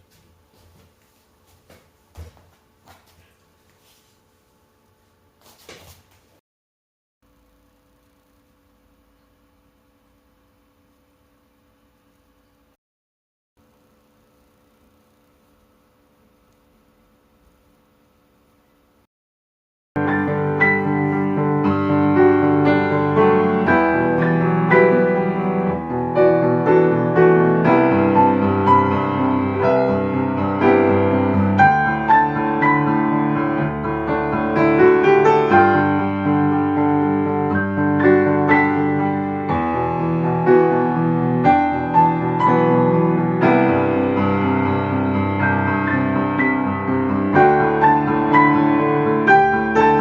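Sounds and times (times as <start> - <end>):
piano playing: 20.0 - 50.0.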